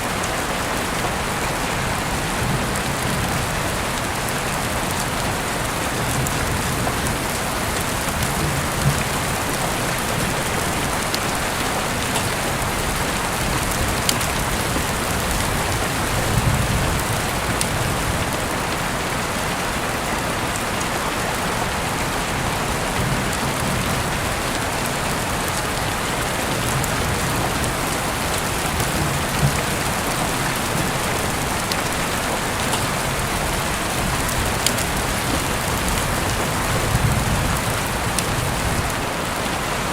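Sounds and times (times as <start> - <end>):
heavy rain falling: 0.0 - 39.9
rain drop ticks: 4.0 - 18.7, 22.9 - 39.0.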